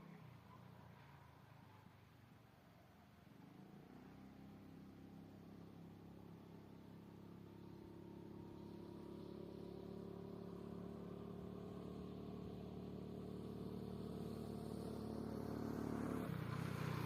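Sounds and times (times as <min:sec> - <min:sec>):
vehicle engine running: 0:04.4 - 0:17.0.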